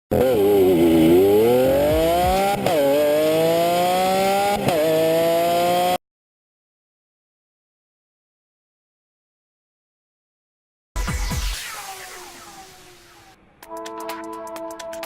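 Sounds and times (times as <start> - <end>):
engine accelerating through gears: 0.1 - 6.0.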